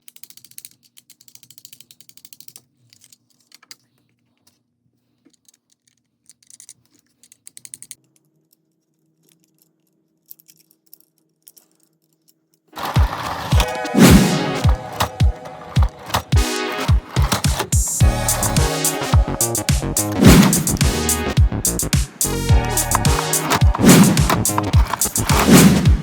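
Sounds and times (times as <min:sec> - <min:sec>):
rapid mechanical clicking: 0:12.8 - 0:26.0.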